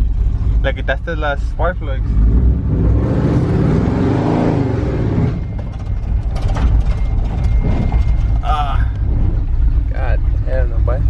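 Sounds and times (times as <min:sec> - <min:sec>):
steady low rumble: 0:00.0 - 0:03.8, 0:04.6 - 0:11.0
vehicle engine revving: 0:00.0 - 0:11.0.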